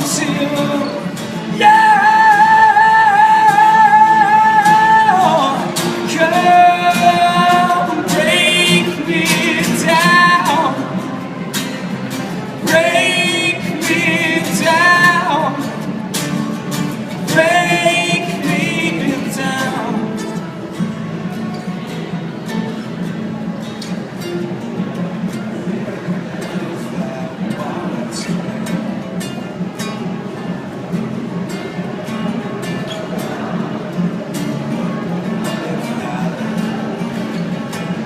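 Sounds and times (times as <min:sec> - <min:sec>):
man singing wordless notes: 0:00.0 - 0:20.6
strummed acoustic guitar: 0:00.0 - 0:38.0.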